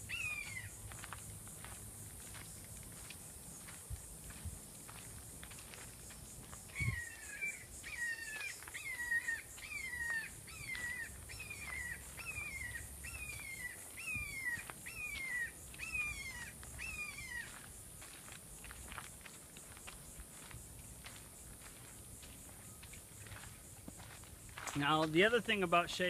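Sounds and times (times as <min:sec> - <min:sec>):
hawk calling: 0:06.7 - 0:17.5.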